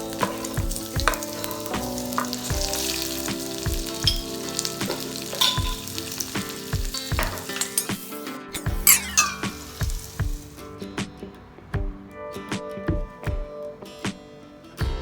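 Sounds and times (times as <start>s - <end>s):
food sizzling in a pan: 0.0s - 10.7s
background music with low beat: 0.0s - 15.0s.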